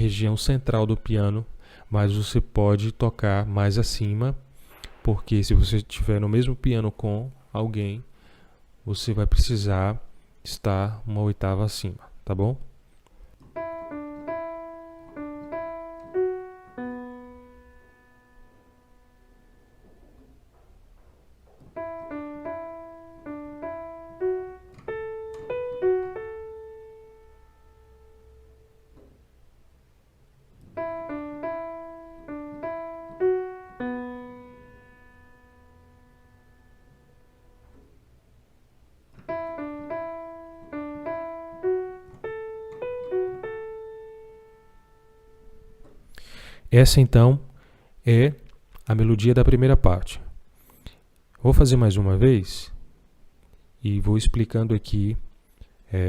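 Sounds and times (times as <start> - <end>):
piano bossa nova melody: 13.4 - 29.4, 30.4 - 46.4.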